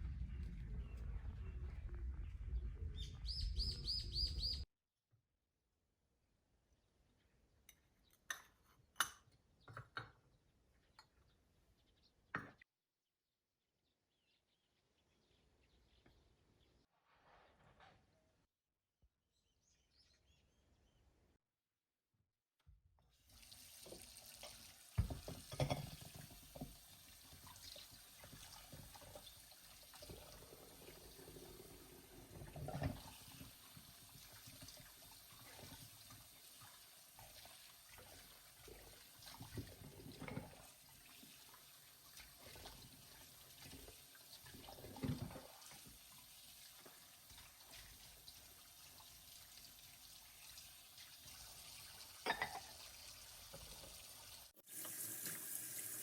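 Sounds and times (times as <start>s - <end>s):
clinks and knocks in sink: 12.3s - 12.6s, 25.0s - 26.7s, 52.2s - 52.8s
water running into sink: 23.3s - 56.0s.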